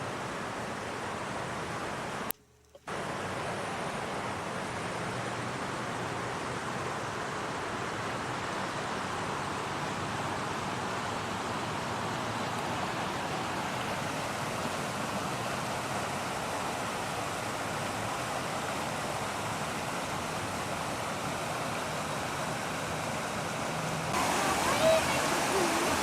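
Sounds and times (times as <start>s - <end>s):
creek floodwater rushing: 0.0s - 26.0s.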